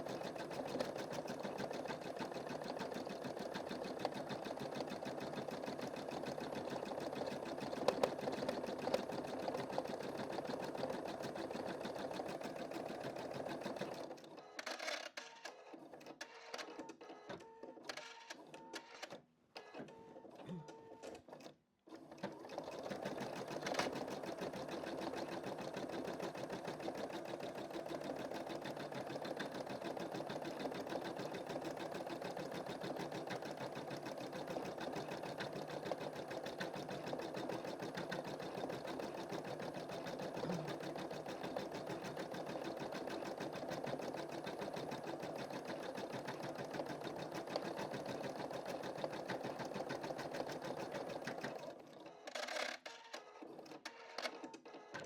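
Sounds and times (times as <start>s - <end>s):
embroidery machine stitching: 0.0s - 14.2s, 21.1s - 53.8s.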